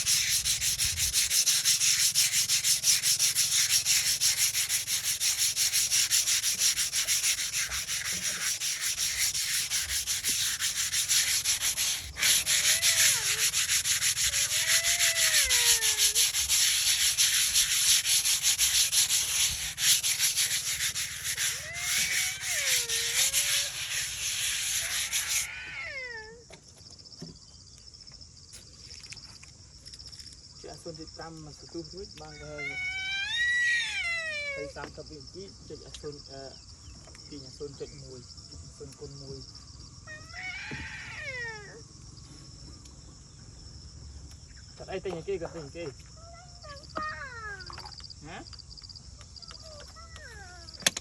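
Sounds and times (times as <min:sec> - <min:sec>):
stone grinding scrape: 0:00.0 - 0:15.0, 0:16.0 - 0:25.4.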